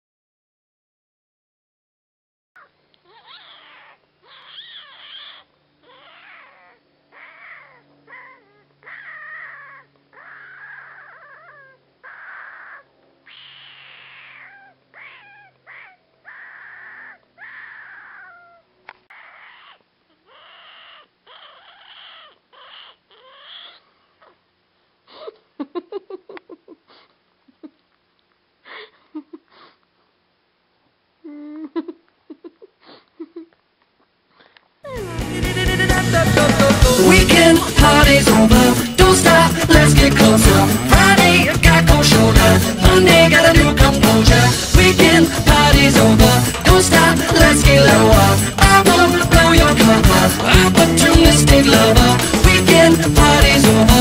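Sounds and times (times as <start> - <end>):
person making whiny squeals: 2.6 - 24.4, 31.2 - 31.9, 34.4 - 35.2.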